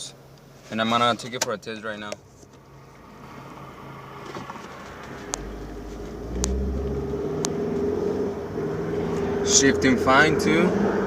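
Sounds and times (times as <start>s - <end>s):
road noise: 0.0s - 11.0s
car engine accelerating: 2.7s - 11.0s.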